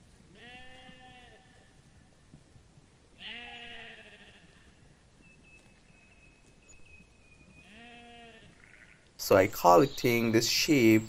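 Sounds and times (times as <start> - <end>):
sheep bleating: 0.3 - 1.7, 3.2 - 4.8, 7.6 - 9.1.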